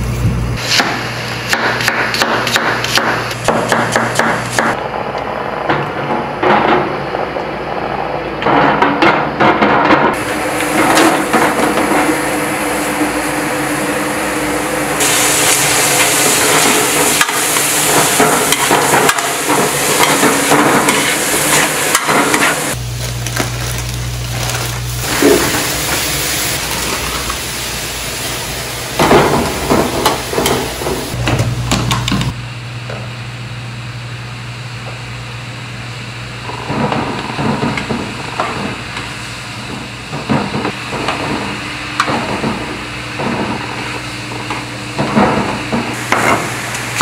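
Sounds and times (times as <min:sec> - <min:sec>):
steady low hum: 0:00.0 - 0:47.0
onions sizzling in hot oil: 0:10.2 - 0:31.2, 0:37.8 - 0:47.0
spatula scraping and knocking pan: 0:16.0 - 0:22.8.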